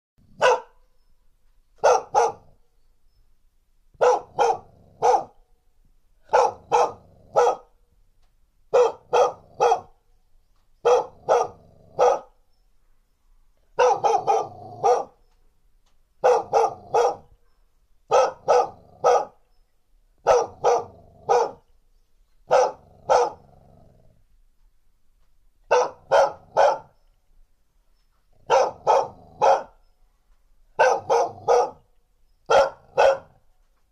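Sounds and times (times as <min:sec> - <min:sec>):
dog barking sharply: 0:00.4 - 0:00.8, 0:01.8 - 0:02.6, 0:04.0 - 0:05.4, 0:06.3 - 0:07.7, 0:08.7 - 0:10.0, 0:10.8 - 0:12.4, 0:13.8 - 0:15.2, 0:16.2 - 0:17.3, 0:18.1 - 0:19.4, 0:20.2 - 0:21.6, 0:22.5 - 0:23.4, 0:25.7 - 0:27.0, 0:28.5 - 0:29.8, 0:30.8 - 0:31.8, 0:32.5 - 0:33.4
dog growling: 0:22.6 - 0:24.3.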